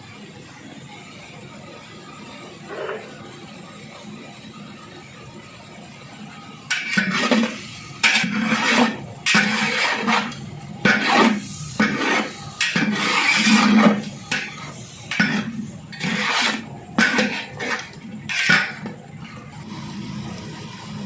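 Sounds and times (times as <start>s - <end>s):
metal ladle scraping metal pot: 6.7s - 19.0s.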